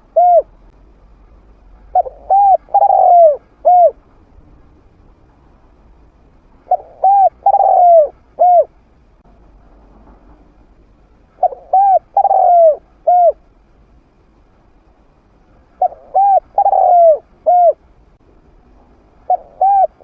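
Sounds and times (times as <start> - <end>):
dove cooing: 0.0 - 0.6, 1.9 - 4.0, 6.6 - 8.8, 11.4 - 13.4, 15.8 - 17.8, 19.2 - 20.0.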